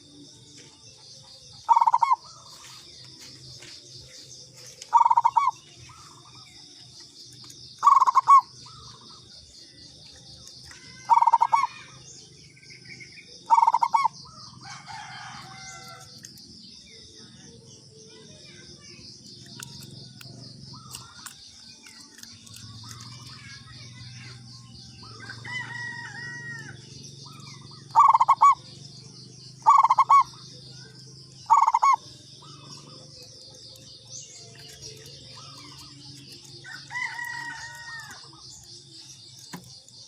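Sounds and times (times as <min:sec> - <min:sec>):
insects chirring: 0:00.0 - 0:40.0
dove cooing: 0:01.7 - 0:02.8, 0:04.9 - 0:06.4, 0:07.8 - 0:09.2, 0:10.7 - 0:11.9, 0:13.4 - 0:16.0, 0:25.0 - 0:28.8, 0:29.6 - 0:33.8.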